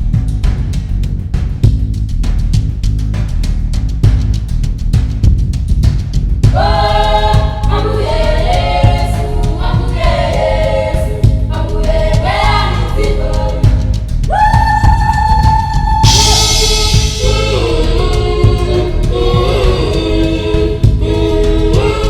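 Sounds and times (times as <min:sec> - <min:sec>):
steady low beat: 0:00.0 - 0:22.0
choir singing held notes: 0:06.5 - 0:14.5, 0:15.5 - 0:22.0.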